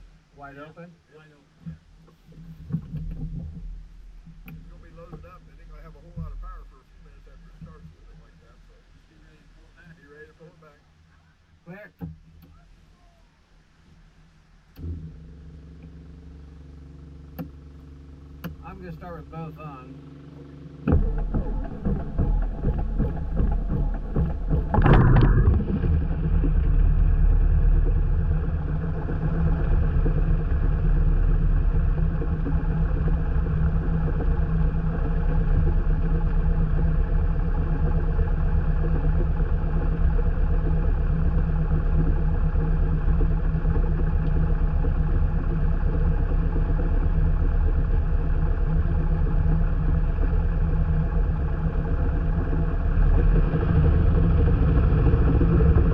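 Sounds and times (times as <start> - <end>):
airplane piston engine starting: 14.8 - 55.9.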